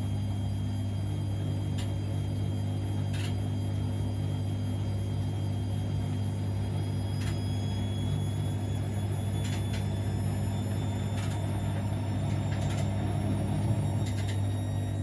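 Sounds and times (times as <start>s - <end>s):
washing machine motor rumble: 0.0s - 15.0s
washing machine clicks: 9.4s - 9.9s, 11.1s - 13.0s, 14.0s - 14.4s.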